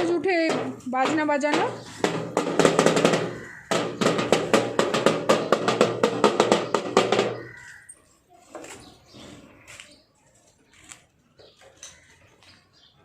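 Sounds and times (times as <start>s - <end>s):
drum strokes: 0.0s - 7.7s.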